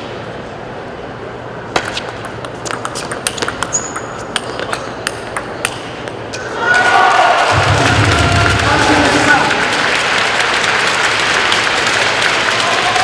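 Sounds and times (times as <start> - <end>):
table tennis ball clicking: 1.8 - 6.4
murmur of a hall: 4.1 - 13.0.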